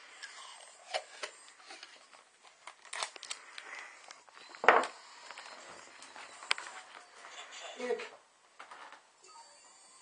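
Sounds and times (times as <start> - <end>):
crinkling and rustling: 0.9 - 9.1.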